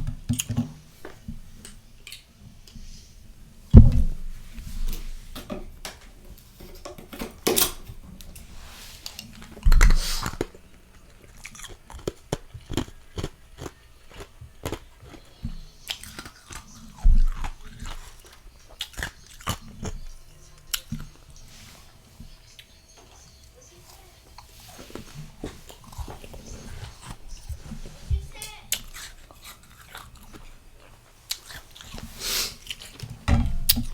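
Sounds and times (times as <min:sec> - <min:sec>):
frost being bitten and chewed: 0:09.1 - 0:21.3, 0:28.7 - 0:33.1.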